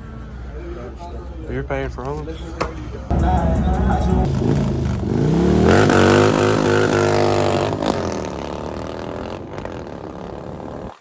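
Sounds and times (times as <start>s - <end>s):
car engine revving: 2.7s - 11.0s.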